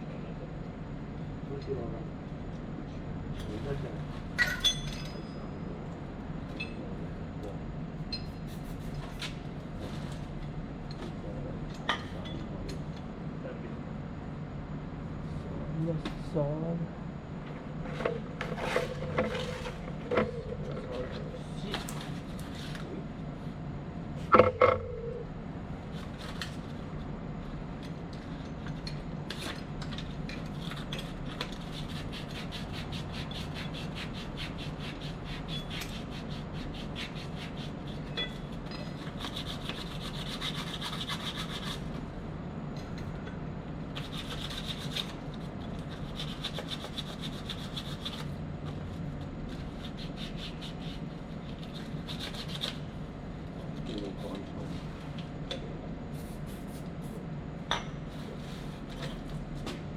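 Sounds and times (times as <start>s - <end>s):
low hum: 0.0s - 28.7s
hand sanding strokes: 31.6s - 38.1s, 39.0s - 42.0s, 44.0s - 45.2s, 45.9s - 48.3s, 49.5s - 52.8s.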